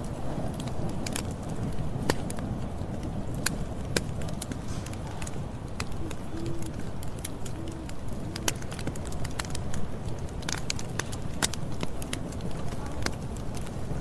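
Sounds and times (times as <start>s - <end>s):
burning wood snapping: 0.0s - 14.0s
campfire crackling and popping: 0.0s - 14.0s
bird cooing: 5.9s - 8.7s.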